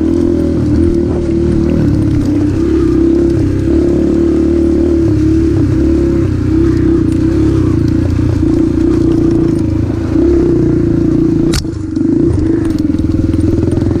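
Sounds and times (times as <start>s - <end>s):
dirt bike engine running: 0.0s - 14.0s
sharp click: 11.4s - 13.0s.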